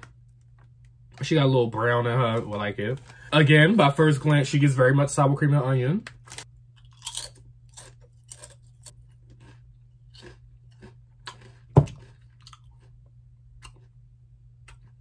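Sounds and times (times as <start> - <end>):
potato chip crunching: 6.2 - 14.0.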